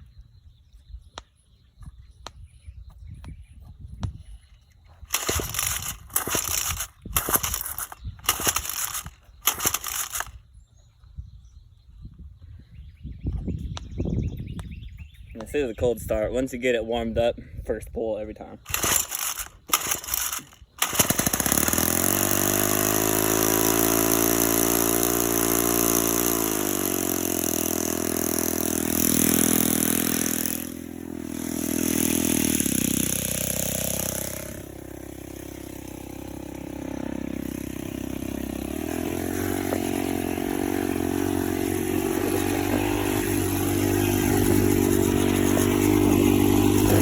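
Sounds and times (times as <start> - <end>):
two-stroke engine running: 5.1 - 10.4, 18.7 - 47.0.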